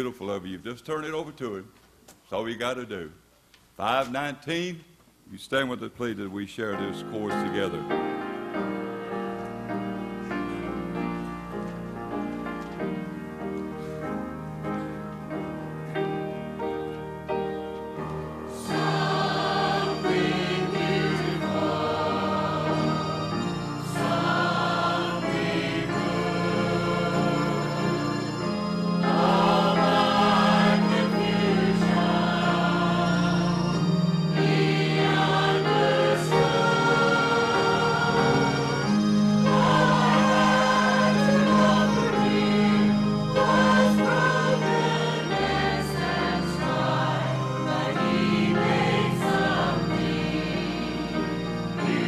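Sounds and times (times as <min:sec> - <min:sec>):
congregation singing a hymn: 0:06.6 - 0:52.0
low sustained instrumental notes: 0:17.4 - 0:52.0.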